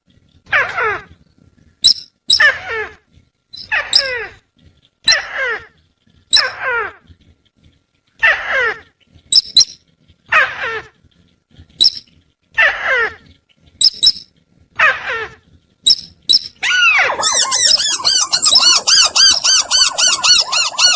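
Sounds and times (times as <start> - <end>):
descending bird call: 16.6 - 20.9
fast run of arched bird notes: 16.7 - 20.9
short high double chirps: 16.8 - 20.9.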